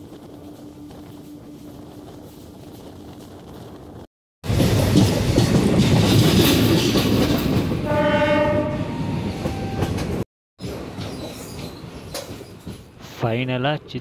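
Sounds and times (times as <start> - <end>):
train wheels rumbling on rails: 0.0 - 13.2
train horn: 7.8 - 9.8.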